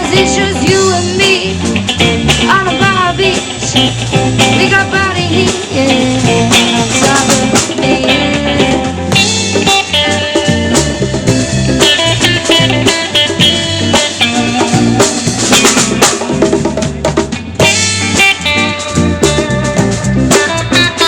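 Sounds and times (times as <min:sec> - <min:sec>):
bass guitar: 0:00.0 - 0:21.0
drum kit with rimshots: 0:00.0 - 0:21.0
electric guitar: 0:00.0 - 0:21.0.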